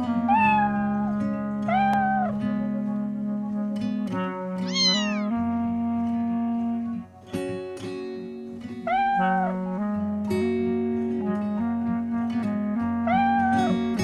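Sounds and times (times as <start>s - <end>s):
plucked guitar-like music: 0.0s - 14.0s
cat meowing: 4.6s - 5.4s, 8.9s - 9.6s.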